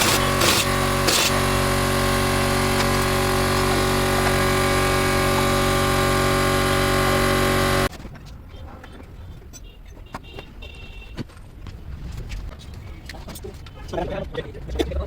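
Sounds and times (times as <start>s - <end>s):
machine running steadily: 0.0s - 7.9s.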